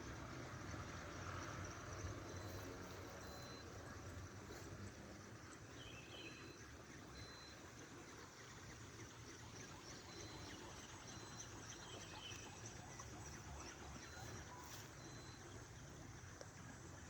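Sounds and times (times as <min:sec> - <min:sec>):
faint high chirps: 0:02.1 - 0:04.7, 0:05.7 - 0:08.2, 0:09.8 - 0:15.6.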